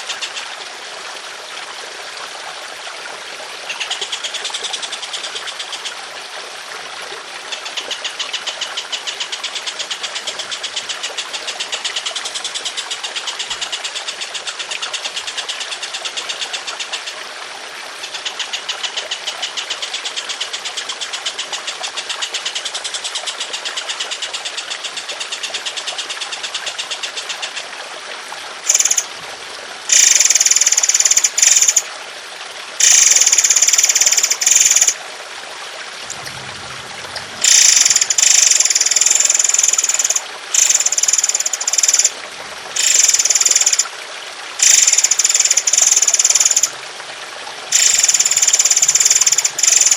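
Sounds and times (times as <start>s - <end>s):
bird buzzing rattle call: 28.7s - 29.1s, 29.9s - 31.9s, 32.8s - 35.0s, 37.4s - 42.1s, 42.8s - 43.9s, 44.6s - 46.7s, 47.7s - 49.9s.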